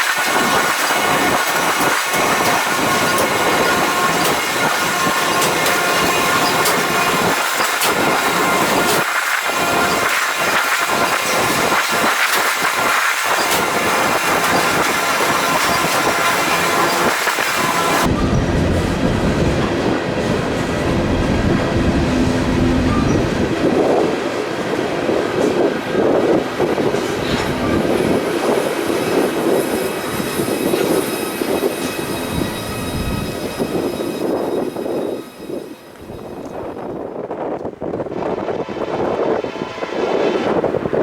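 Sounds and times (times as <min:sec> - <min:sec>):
freight train cars rumbling: 0:00.0 - 0:41.0
wheel squeal: 0:00.3 - 0:18.4, 0:22.6 - 0:24.0, 0:27.0 - 0:36.9.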